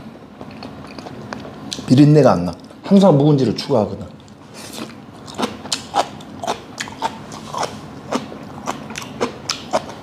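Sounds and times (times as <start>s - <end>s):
person chewing crunchy food: 0.4s - 1.8s, 4.2s - 10.0s.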